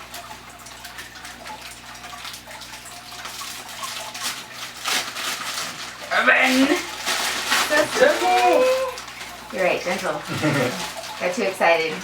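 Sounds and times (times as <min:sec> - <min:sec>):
water trickling: 0:00.0 - 0:12.0
wet wrapping crinkling: 0:03.1 - 0:12.0
crackles: 0:03.2 - 0:10.1.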